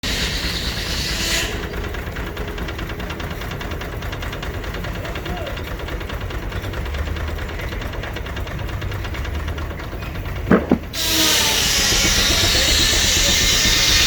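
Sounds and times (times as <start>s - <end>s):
steam traction engine running: 0.0s - 14.0s
sharp knocks: 10.5s - 14.0s.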